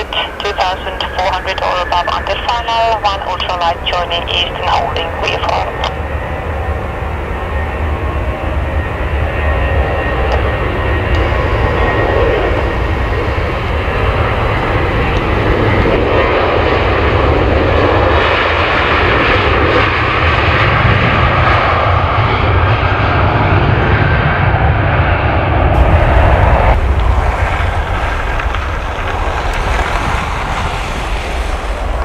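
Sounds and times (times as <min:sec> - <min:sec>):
jet engine rumble and hiss: 0:00.0 - 0:32.0.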